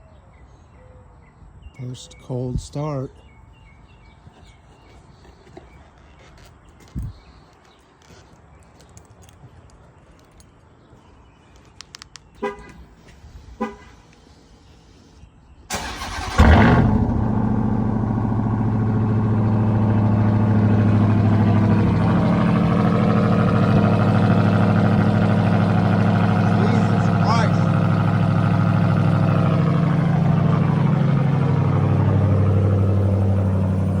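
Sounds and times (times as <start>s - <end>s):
truck horn chirps: 12.4s - 14.1s
truck engine idling: 15.7s - 34.0s.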